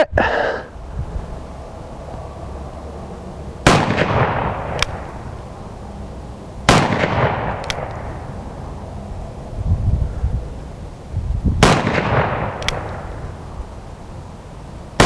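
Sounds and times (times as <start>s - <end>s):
revolver shots ringing out: 3.6s - 5.2s, 6.7s - 8.4s, 11.6s - 13.3s.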